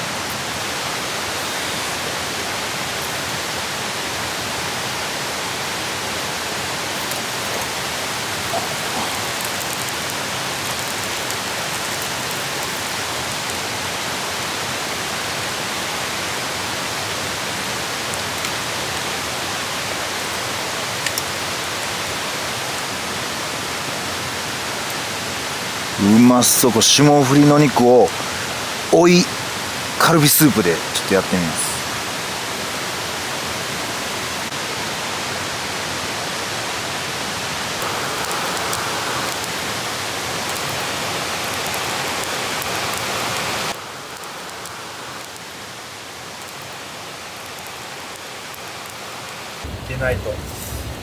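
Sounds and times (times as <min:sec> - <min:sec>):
meat sizzling in a pan: 0:06.0 - 0:23.2, 0:37.6 - 0:49.6.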